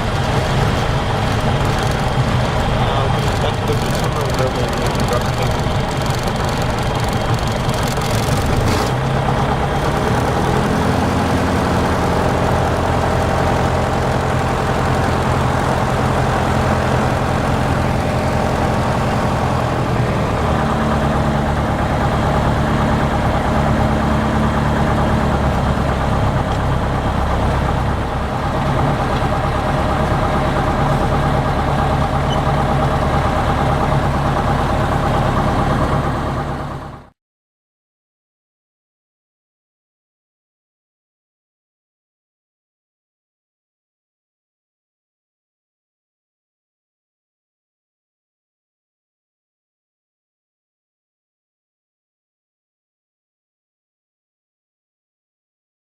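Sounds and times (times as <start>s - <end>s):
light aircraft engine and propeller: 0.0s - 37.1s.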